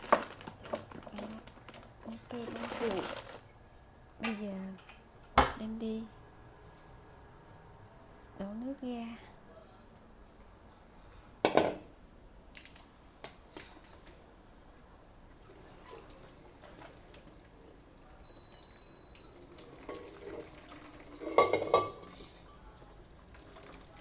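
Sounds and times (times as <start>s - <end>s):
faint water sounds: 15.2s - 24.0s
metal cookware clanking: 19.8s - 22.3s
pot ringing clatter: 21.1s - 22.3s.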